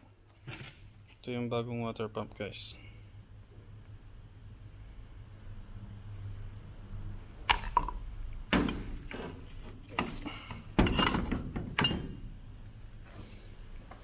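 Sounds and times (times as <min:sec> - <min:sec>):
tools knocking and clattering: 0:07.5 - 0:12.3.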